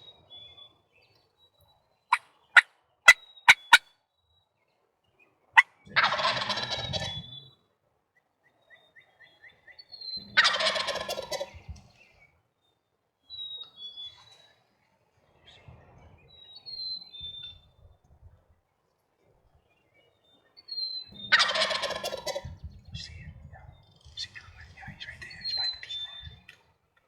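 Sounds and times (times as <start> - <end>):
short sharp turkey call notes: 3.5 - 3.8
turkey gobbling: 3.5 - 3.8, 6.0 - 7.1, 10.4 - 11.6, 21.3 - 22.6.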